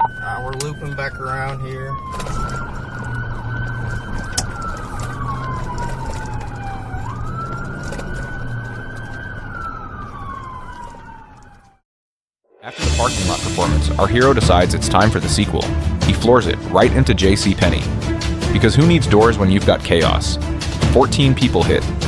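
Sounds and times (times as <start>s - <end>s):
car running noise: 0.0s - 11.1s
police siren wailing: 0.0s - 11.8s, 12.6s - 22.0s.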